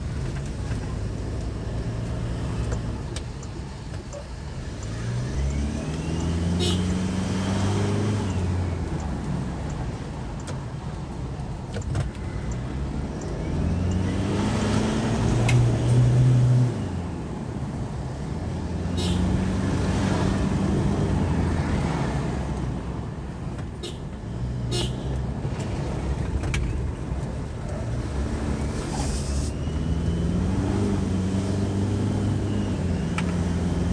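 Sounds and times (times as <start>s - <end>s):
engine revving: 4.6s - 9.0s, 12.8s - 17.0s, 27.8s - 33.9s
turbocharger whistling: 28.9s - 31.2s.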